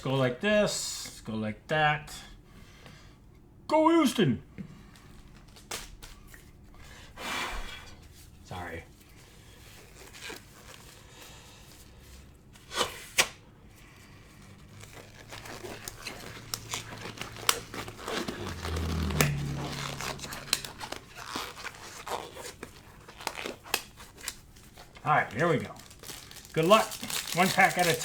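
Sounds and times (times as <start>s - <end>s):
foil wrappers crinkling and tearing: 5.1s - 6.3s, 9.0s - 12.3s, 14.2s - 28.0s.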